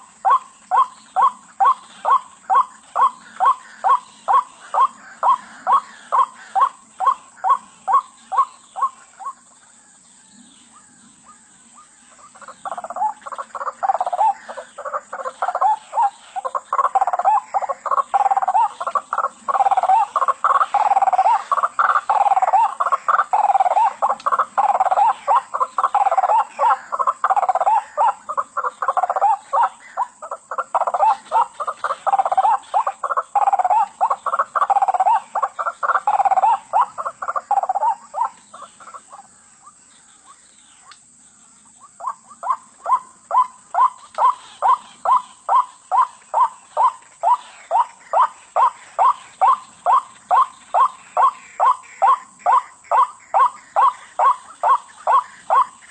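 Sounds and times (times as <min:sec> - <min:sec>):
waterhen harsh wak calls: 0:42.0 - 0:55.9.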